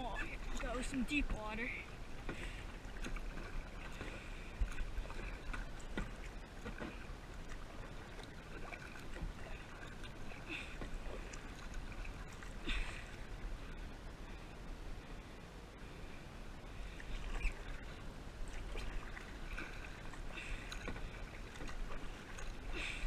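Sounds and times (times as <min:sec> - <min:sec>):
paddle strokes splashing in water: 0:00.0 - 0:13.8, 0:16.7 - 0:23.0
water running along hull: 0:00.0 - 0:23.0.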